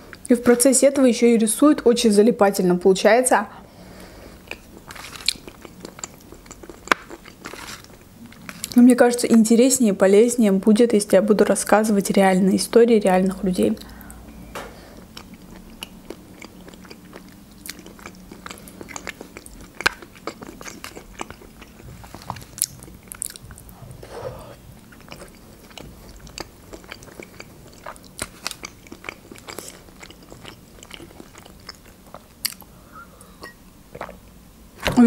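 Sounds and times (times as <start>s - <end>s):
wet chewing with clicks: 4.4s - 9.4s, 15.1s - 23.7s, 24.8s - 32.7s.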